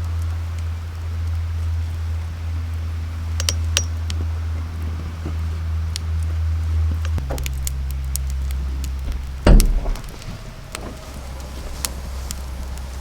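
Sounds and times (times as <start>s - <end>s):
low machine hum: 0.0s - 13.0s
light clicks and clinks: 3.4s - 4.2s.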